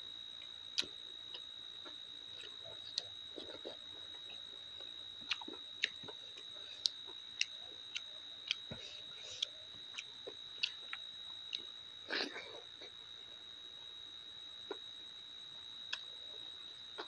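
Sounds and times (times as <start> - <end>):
faint high-pitched whine: 0.0 - 17.0
chewing with wet mouth clicks: 0.8 - 12.4, 15.9 - 16.1.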